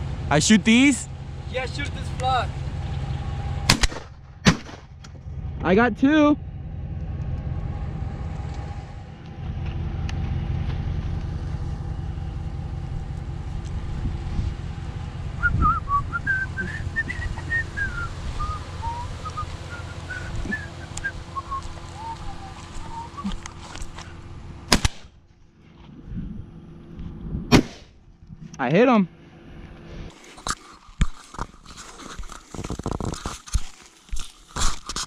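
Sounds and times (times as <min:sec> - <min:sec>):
low steady rumble: 0:00.0 - 0:34.9
loud gunshot: 0:03.7 - 0:04.9, 0:24.7 - 0:25.1, 0:27.5 - 0:28.0
wavering whistled tune: 0:15.4 - 0:23.8.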